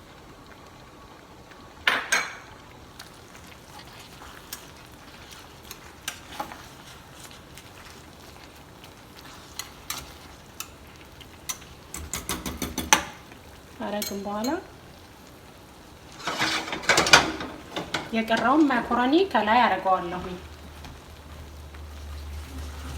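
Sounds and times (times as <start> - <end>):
faint sizzle of sauce cooking: 0.0 - 22.9
metal utensil clinking on a pan: 9.5 - 10.8, 11.4 - 13.2, 13.9 - 14.7, 16.2 - 18.6.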